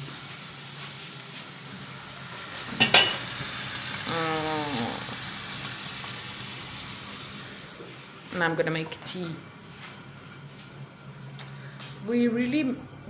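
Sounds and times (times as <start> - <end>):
food sizzling in a frying pan: 0.0 - 11.3
utensil clinking against pan: 2.8 - 3.2.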